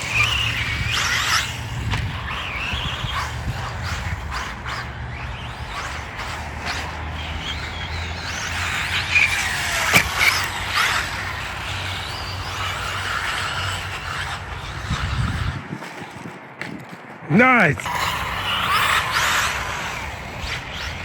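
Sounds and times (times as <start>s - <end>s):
rc car electric motors whining: 0.0s - 16.3s, 17.8s - 21.0s.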